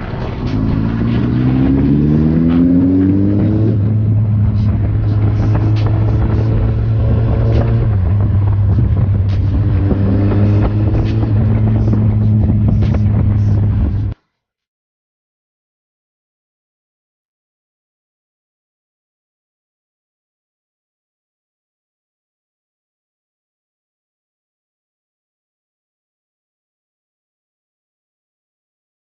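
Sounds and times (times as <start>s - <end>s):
motorcycle engine accelerating: 0.0s - 14.2s.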